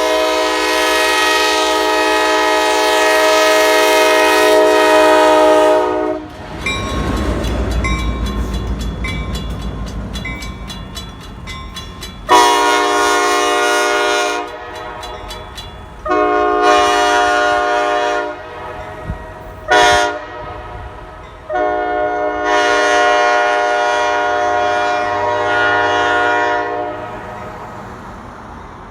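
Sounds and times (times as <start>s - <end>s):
locomotive horn blasts: 0.0s - 6.5s, 12.3s - 15.4s, 16.0s - 27.3s
crossing bell: 6.5s - 17.4s, 18.3s - 19.7s, 20.8s - 21.6s.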